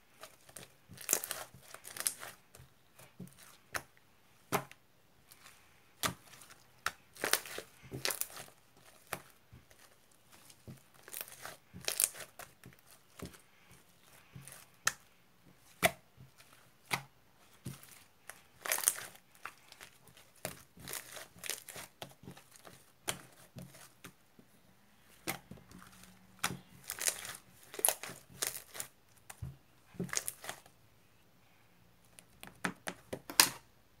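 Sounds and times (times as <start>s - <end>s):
crinkling and tearing: 0.2s - 3.6s, 5.3s - 13.4s, 17.6s - 24.0s, 25.1s - 29.3s, 30.0s - 30.7s.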